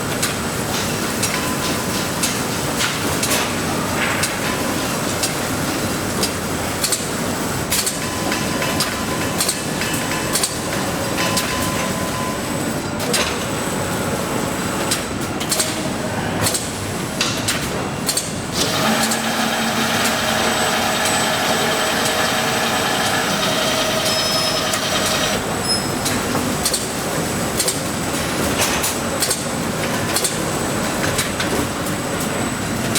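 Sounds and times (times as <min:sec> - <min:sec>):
machinery clatter with sharp clicks: 0:00.0 - 0:14.0, 0:14.7 - 0:32.9
multi-tone machine hum: 0:18.6 - 0:25.6.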